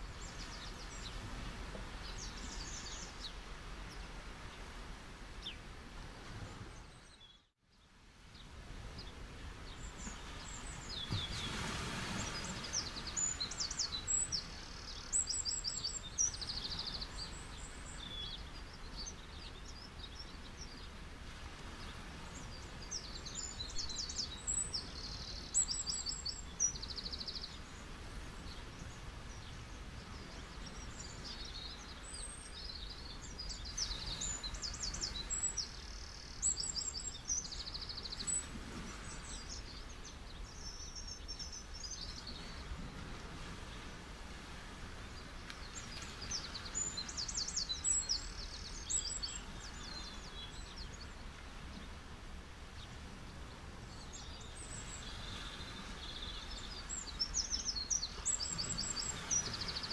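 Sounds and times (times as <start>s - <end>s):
beach waves rushing: 10.1s - 15.1s, 54.8s - 57.3s, 58.0s - 59.9s
small birds chirping: 21.8s - 42.7s, 45.1s - 51.9s, 53.9s - 59.9s.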